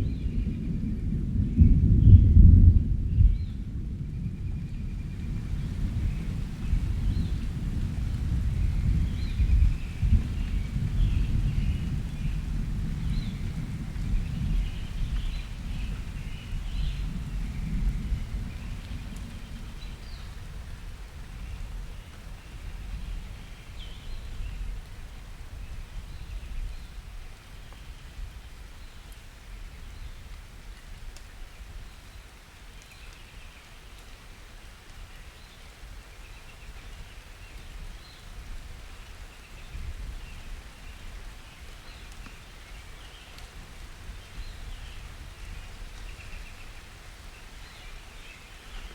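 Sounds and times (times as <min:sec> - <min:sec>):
thunder rumbling: 0:00.0 - 0:27.2
steady rain: 0:00.0 - 0:48.9.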